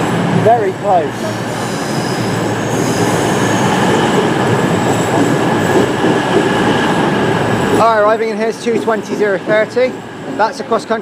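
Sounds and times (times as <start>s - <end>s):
diesel train engines: 0.0s - 11.0s
train wheels on rails: 0.0s - 11.0s
faint high squeal: 1.4s - 4.1s.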